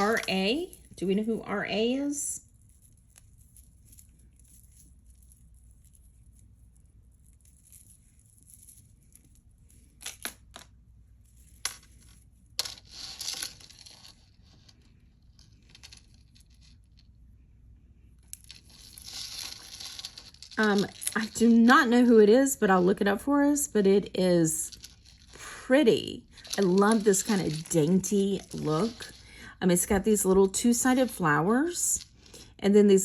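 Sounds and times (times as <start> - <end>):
beaded chain clicking: 18.2 - 21.7, 26.2 - 31.2.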